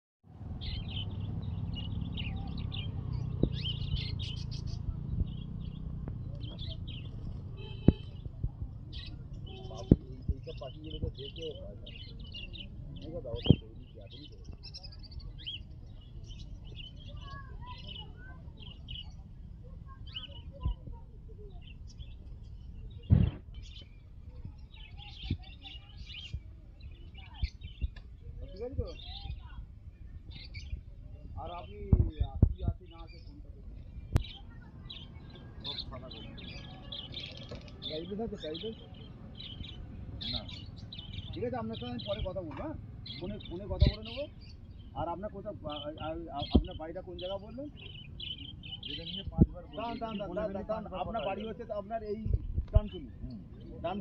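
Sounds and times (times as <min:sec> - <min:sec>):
caged birds chirping and trilling: 0:00.3 - 0:54.0
loud thump: 0:23.0 - 0:23.4.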